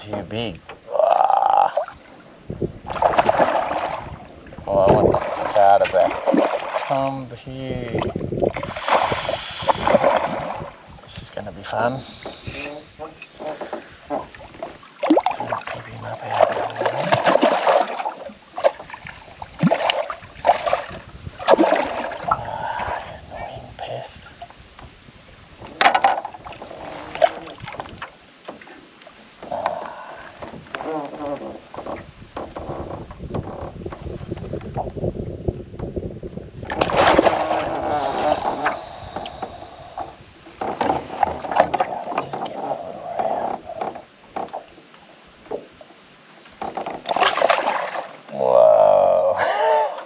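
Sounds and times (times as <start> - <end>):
water splashing: 0.0 - 23.2, 25.6 - 33.6, 36.6 - 50.0
fish thrashing and splashing: 2.8 - 4.3, 5.0 - 7.0, 14.1 - 22.6, 36.7 - 40.0, 46.7 - 48.4
fish thrashing at surface: 2.9 - 4.1, 36.7 - 40.0, 47.0 - 48.2.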